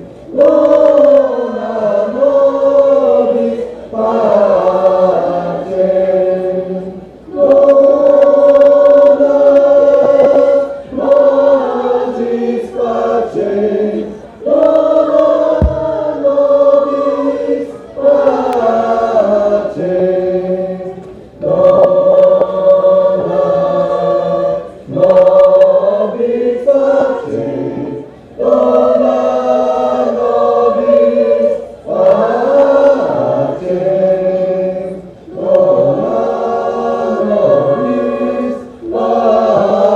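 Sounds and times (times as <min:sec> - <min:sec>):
choir singing sustained chords: 0:00.0 - 0:39.9
breaths: 0:14.1 - 0:14.4.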